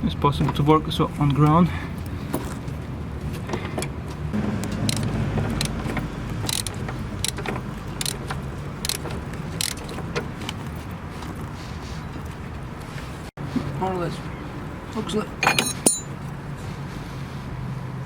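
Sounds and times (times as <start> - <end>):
metallic clinks of tools and bolts: 15.4 - 16.2.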